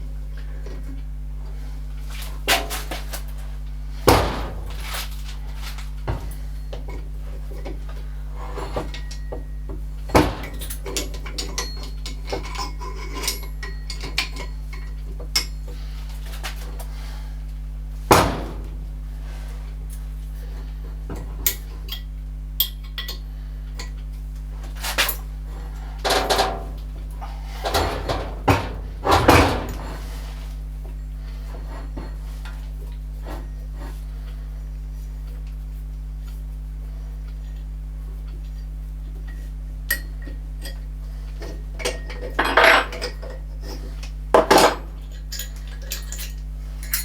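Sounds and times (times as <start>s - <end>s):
steady low hum: 0.0s - 47.0s
metal tools clinking and knocking: 10.1s - 15.7s, 26.0s - 26.8s, 27.6s - 30.1s, 39.9s - 47.0s.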